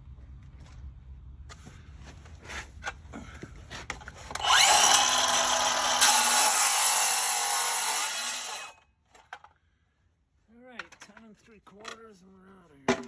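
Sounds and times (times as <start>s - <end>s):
circular saw whining: 4.4s - 8.8s.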